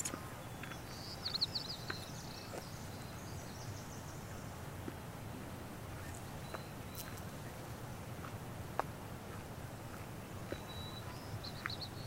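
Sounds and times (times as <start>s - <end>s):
bird chirping: 0.0s - 4.5s, 6.0s - 7.7s, 10.4s - 12.0s
soft background hiss: 0.0s - 12.0s.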